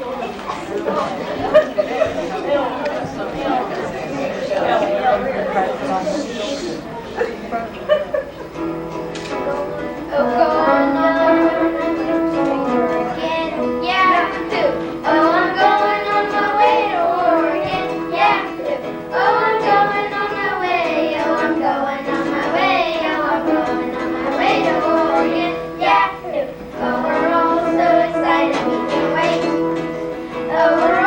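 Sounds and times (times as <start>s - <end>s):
instrumental accompaniment: 7.8s - 31.0s
children singing: 9.8s - 31.0s.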